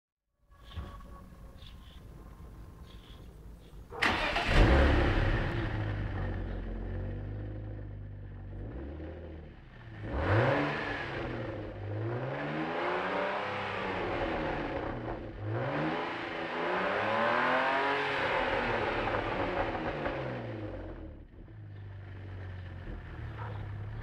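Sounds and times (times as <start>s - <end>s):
car engine idling and revving: 1.6s - 24.0s.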